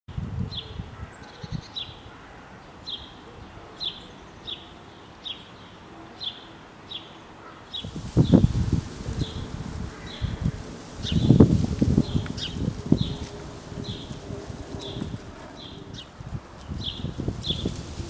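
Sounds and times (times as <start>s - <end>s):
faint outdoor background: 0.1s - 18.0s
bird chirping: 3.8s - 18.0s.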